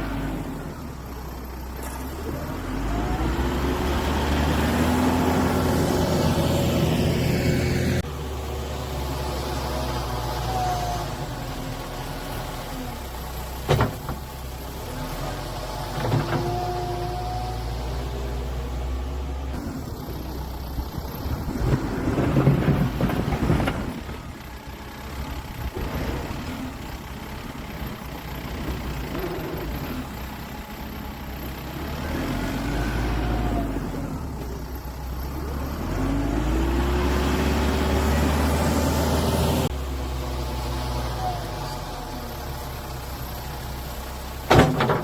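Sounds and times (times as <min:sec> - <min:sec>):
tractor diesel engine under load: 0:00.0 - 0:45.0.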